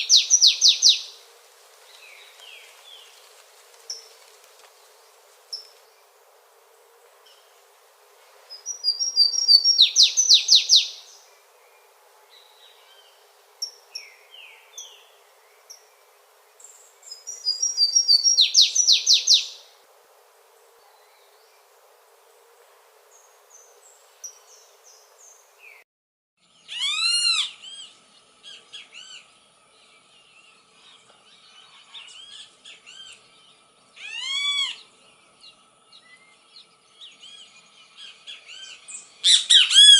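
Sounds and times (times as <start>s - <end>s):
soft bird chirps: 8.5s - 11.2s, 16.6s - 19.6s.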